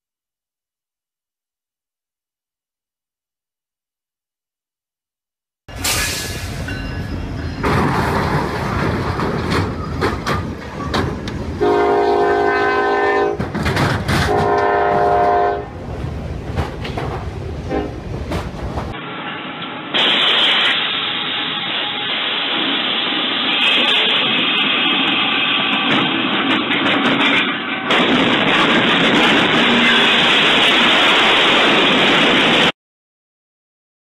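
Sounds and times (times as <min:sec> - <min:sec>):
freight train rumbling and clattering: 0:05.7 - 0:21.2, 0:21.9 - 0:32.7
locomotive horn blasts: 0:11.6 - 0:13.5, 0:14.2 - 0:15.7, 0:17.7 - 0:18.0.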